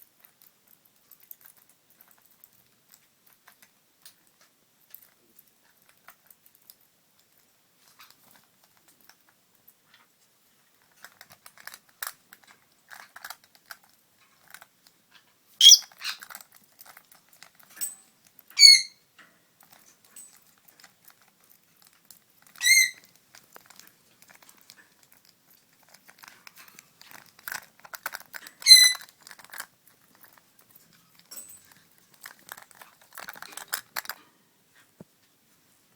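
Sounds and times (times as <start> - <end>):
lovebird high-pitched calls: 15.6 - 15.9, 18.6 - 19.0, 22.6 - 23.0, 28.6 - 29.0.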